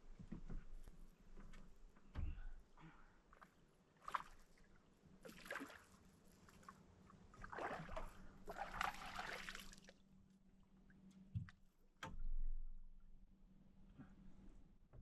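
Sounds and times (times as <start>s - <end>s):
water splashing around kayak: 4.0s - 10.0s.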